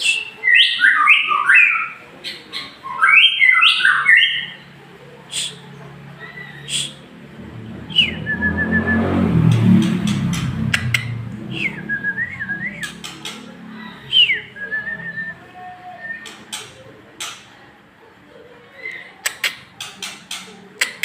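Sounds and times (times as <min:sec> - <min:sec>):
low rumble: 0:07.2 - 0:12.8
bird singing whistled phrases: 0:07.9 - 0:08.9
sharp clicks: 0:19.2 - 0:21.0.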